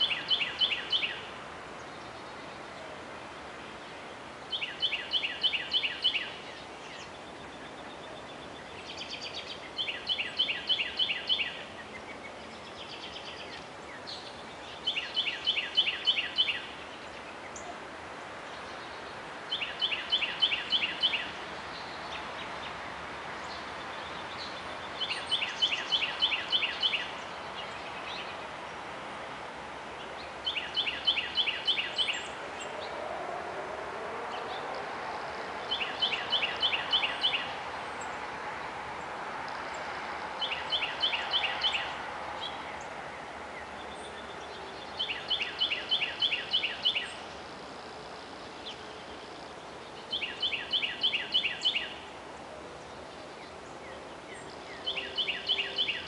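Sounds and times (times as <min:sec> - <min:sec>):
steady outdoor hiss: 0:00.0 - 0:56.0
songbird singing falling notes: 0:23.4 - 0:28.4, 0:30.0 - 0:33.0, 0:35.7 - 0:38.2.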